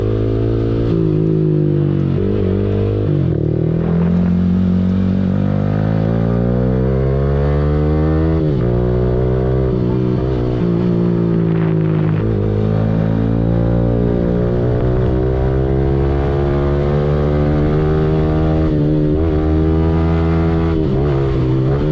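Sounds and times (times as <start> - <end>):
motorcycle engine accelerating: 0.0 - 21.9.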